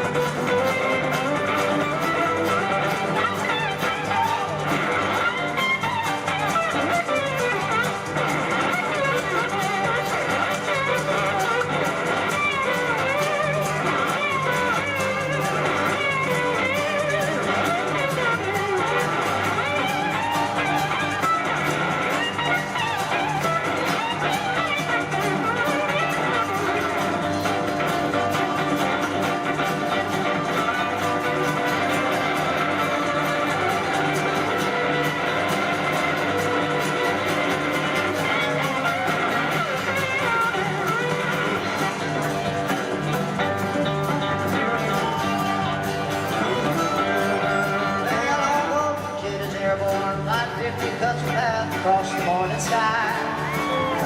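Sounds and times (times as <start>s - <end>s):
band rhythm section: 0.0s - 54.0s
bass and drum groove: 0.0s - 54.0s
electric guitar lead: 0.0s - 54.0s.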